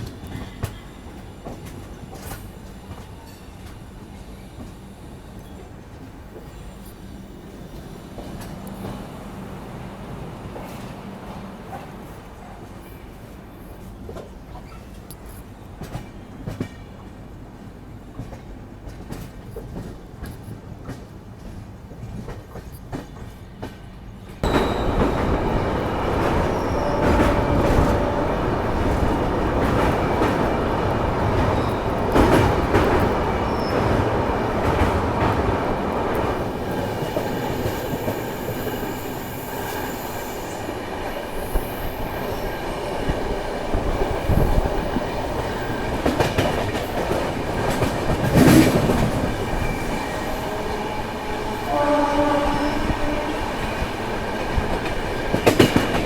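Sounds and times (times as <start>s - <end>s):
train rumble and wheel clatter: 0.0s - 56.0s
high wheel squeals: 24.4s - 30.6s.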